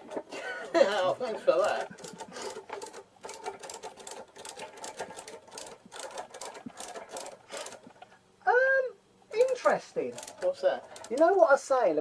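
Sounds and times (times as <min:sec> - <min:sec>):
spanner clicking against metal: 0:09.4 - 0:11.4.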